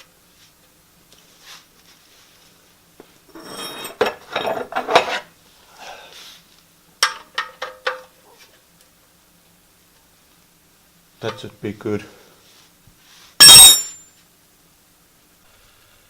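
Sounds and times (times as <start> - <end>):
metal hand tools clinking: 13.4 - 14.0.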